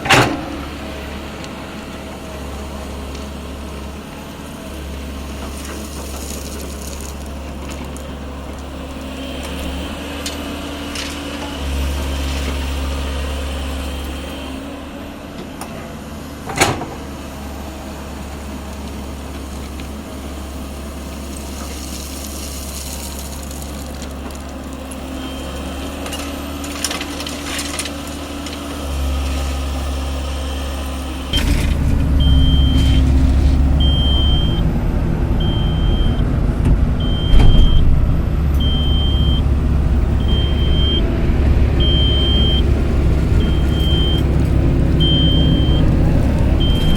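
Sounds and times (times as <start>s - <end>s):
diesel machinery running: 0.0s - 46.9s
warning alarm beeping: 31.4s - 34.7s, 35.4s - 36.3s, 37.0s - 37.9s, 38.6s - 39.5s, 40.1s - 41.1s, 41.8s - 42.7s, 43.4s - 46.0s, 46.6s - 46.9s.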